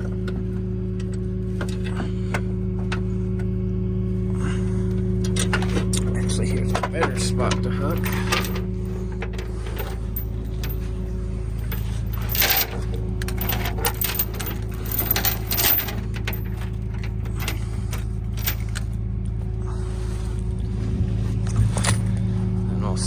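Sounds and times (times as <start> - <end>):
engine idling: 0.0 - 23.0
metallic clanks and rattles: 5.2 - 19.0.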